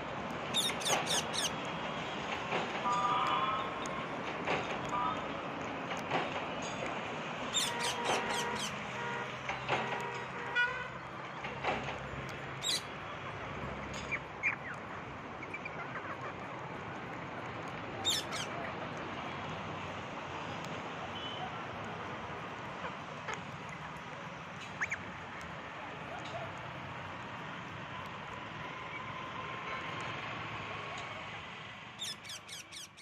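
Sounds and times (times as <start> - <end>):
steady background noise: 0.0 - 33.0
parrots squawking: 0.5 - 1.6, 7.5 - 8.8, 12.6 - 12.9, 18.0 - 18.5, 32.0 - 33.0.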